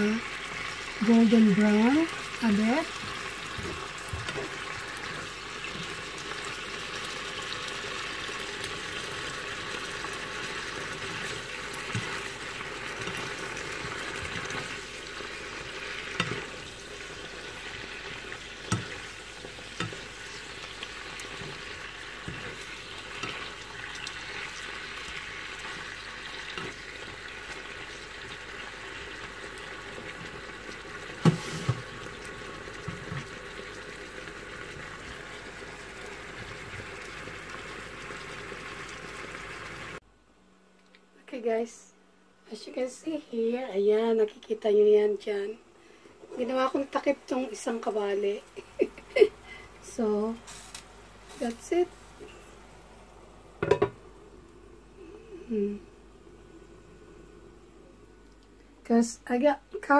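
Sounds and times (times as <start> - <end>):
meat sizzling in oil: 0.0 - 40.0, 49.9 - 52.2.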